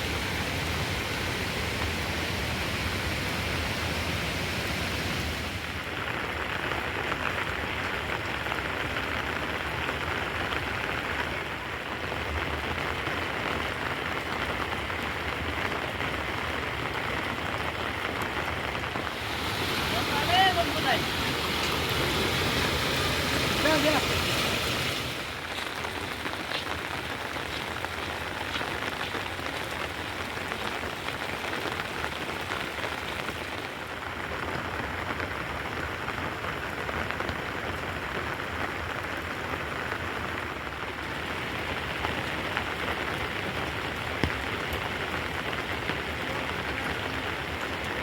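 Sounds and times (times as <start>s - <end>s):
steady rain falling: 0.0s - 48.0s
raindrop ticks: 25.3s - 36.0s, 41.0s - 48.0s.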